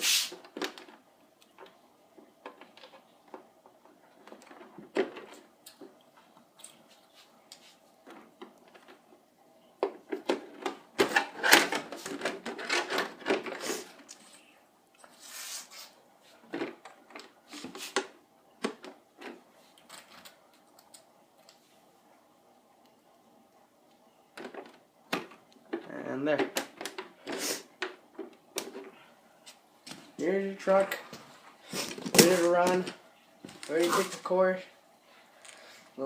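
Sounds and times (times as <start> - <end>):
plastic parts clicking and rattling: 0.4 - 1.8, 2.4 - 5.8, 9.8 - 14.4, 24.4 - 28.9.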